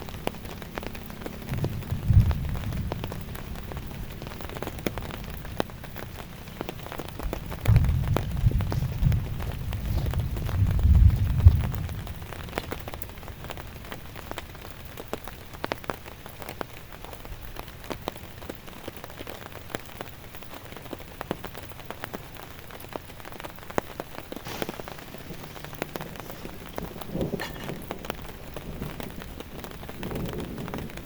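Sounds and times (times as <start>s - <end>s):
raindrops ticking on a surface: 0.0s - 31.0s.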